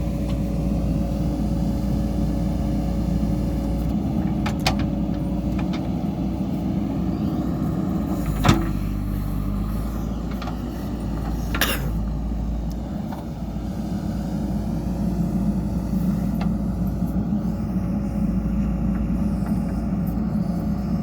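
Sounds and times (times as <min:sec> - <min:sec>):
backhoe diesel engine running: 0:00.0 - 0:21.0.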